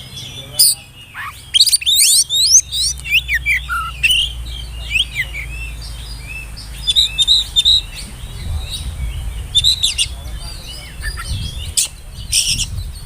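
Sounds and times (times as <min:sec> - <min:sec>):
bird singing whistled notes: 0:00.0 - 0:13.0.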